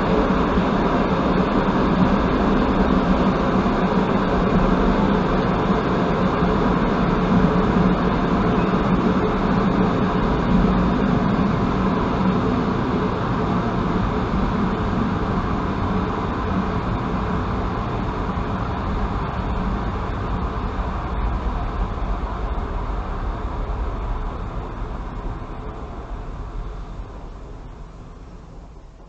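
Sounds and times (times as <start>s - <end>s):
railcar rolling on track: 0.0s - 29.0s.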